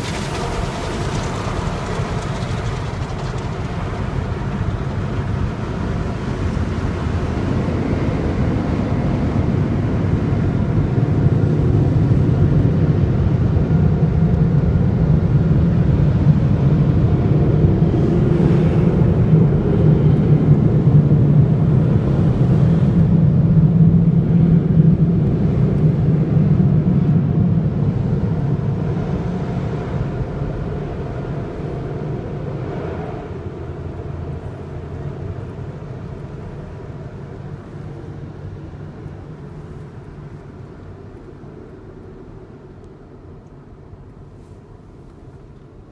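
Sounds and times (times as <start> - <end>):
dryer blowers rushing: 0.0 - 9.3.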